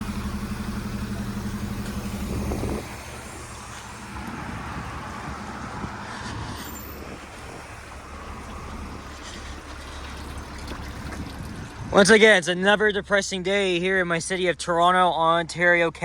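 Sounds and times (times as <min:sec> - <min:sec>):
vehicle engine pulsing: 0:00.0 - 0:14.7
hiss of traffic on wet street: 0:00.6 - 0:10.2.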